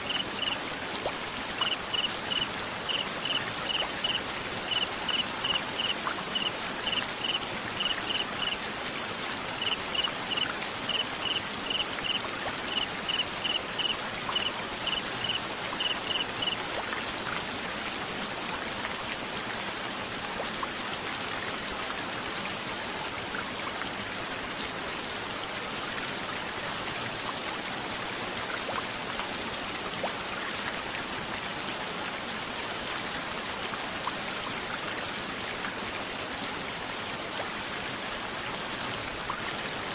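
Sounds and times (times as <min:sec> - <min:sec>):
cricket chirping: 0:00.0 - 0:00.6, 0:01.6 - 0:08.6, 0:09.6 - 0:16.6
rain: 0:00.0 - 0:39.9.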